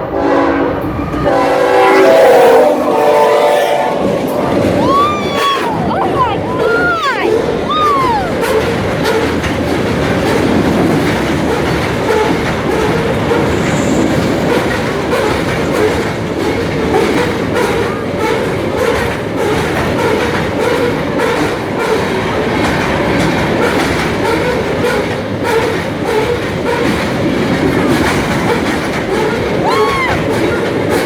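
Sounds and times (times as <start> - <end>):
freight train rumbling: 0.0 - 31.0
wheels clattering over track: 8.3 - 31.0.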